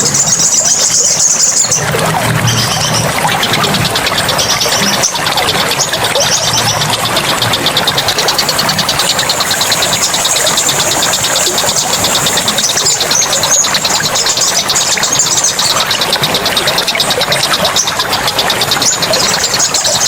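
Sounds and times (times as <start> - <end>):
running water: 0.0 - 20.0
high fast pulsing buzz: 3.7 - 17.1.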